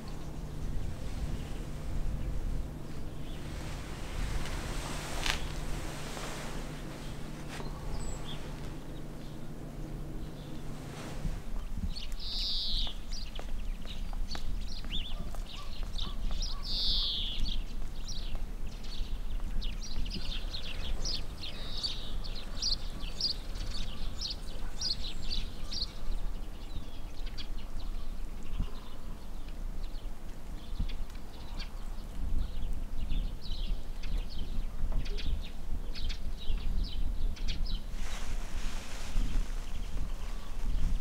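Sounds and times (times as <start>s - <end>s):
low rumble: 0.0s - 12.8s
small songbirds chirping: 0.0s - 41.0s.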